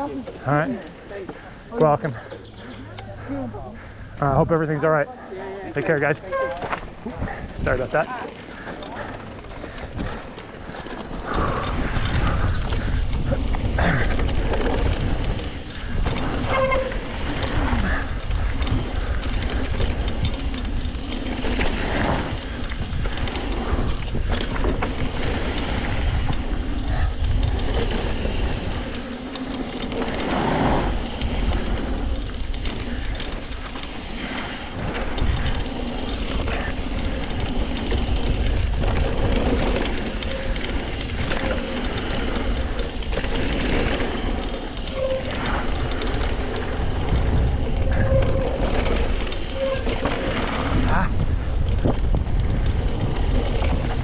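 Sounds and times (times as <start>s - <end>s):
tyres rolling over dirt: 0.0s - 4.4s, 5.5s - 54.0s
bike rattling and clicking: 0.0s - 54.0s
wind on microphone: 6.3s - 29.0s, 34.1s - 54.0s.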